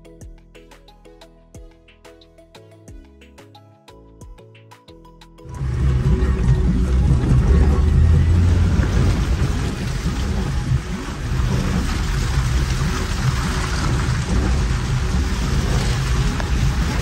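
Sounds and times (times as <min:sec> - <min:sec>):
car engine droning: 0:05.5 - 0:17.0
heavy rain: 0:05.5 - 0:17.0
wet road noise: 0:05.5 - 0:17.0.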